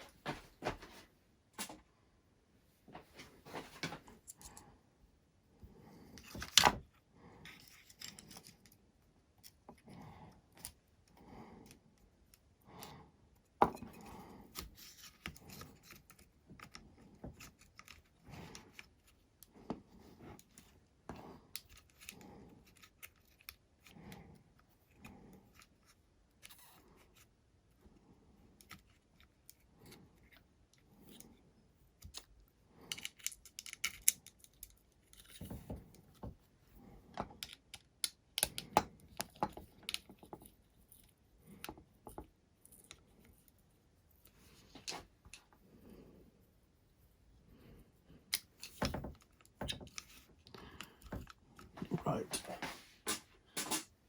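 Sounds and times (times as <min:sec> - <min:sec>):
small clicks and ticks of screwing: 0:04.1 - 0:04.7, 0:06.1 - 0:27.8, 0:28.4 - 0:43.6, 0:48.2 - 0:51.8.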